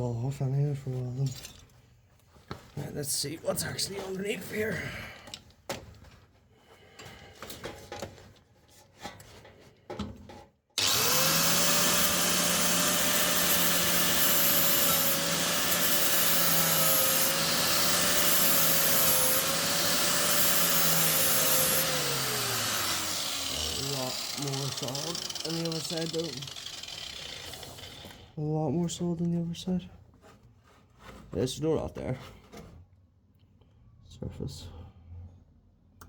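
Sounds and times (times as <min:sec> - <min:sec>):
abrasive power tool grinding metal: 0:10.8 - 0:28.2.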